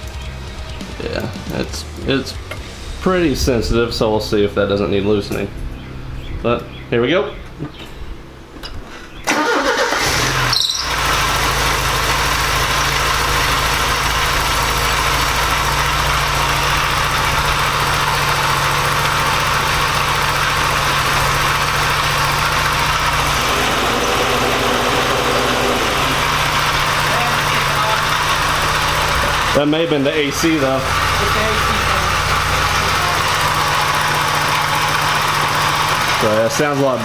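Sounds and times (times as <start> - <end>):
car engine starting and idling: 0.0 - 37.0.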